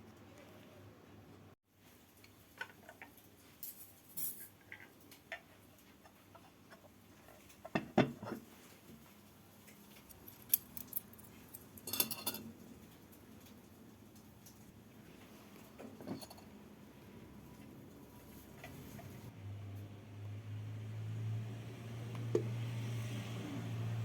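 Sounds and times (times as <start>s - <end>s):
cutlery and dishes clinking: 10.2s - 12.6s, 15.8s - 16.5s.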